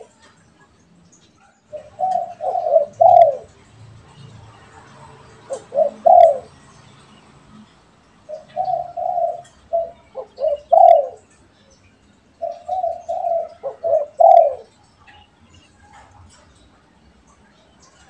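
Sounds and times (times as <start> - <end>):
dove cooing: 0.0 - 0.3, 1.7 - 3.8, 4.5 - 6.6, 8.2 - 11.4, 12.4 - 14.8.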